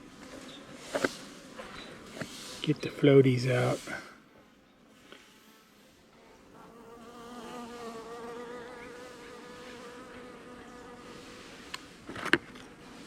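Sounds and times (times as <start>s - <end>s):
bee buzzing: 6.4s - 11.6s.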